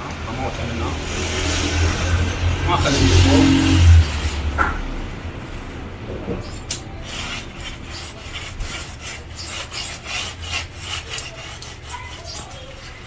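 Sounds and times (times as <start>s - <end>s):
hand tool scraping cement render: 6.5s - 13.0s.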